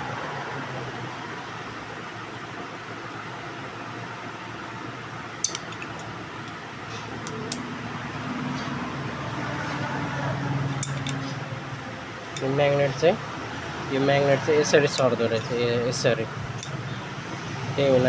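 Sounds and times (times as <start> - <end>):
fan-like background noise: 0.0 - 18.0
metal parts clicking: 5.4 - 6.6, 10.7 - 11.4, 16.5 - 16.9.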